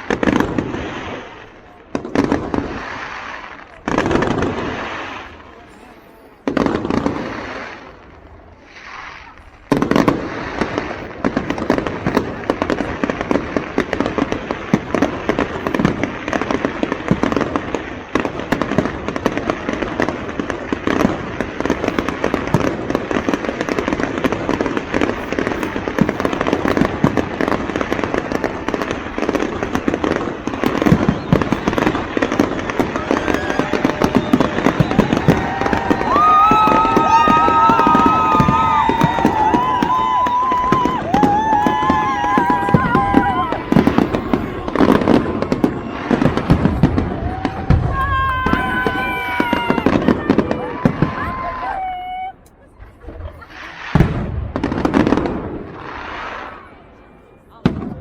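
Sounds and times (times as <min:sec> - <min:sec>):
fireworks barrage crackling: 0:00.0 - 0:58.0
firework bang: 0:18.2 - 0:51.4, 0:53.4 - 0:56.7.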